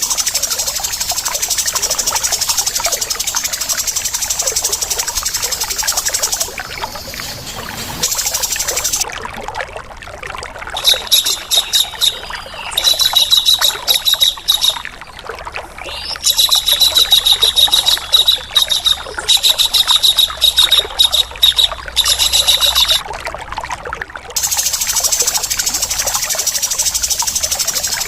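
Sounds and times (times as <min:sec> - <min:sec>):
harsh rasping bird calls: 0:00.0 - 0:09.0, 0:15.9 - 0:23.0, 0:24.4 - 0:28.0
running water trickling: 0:00.0 - 0:28.0.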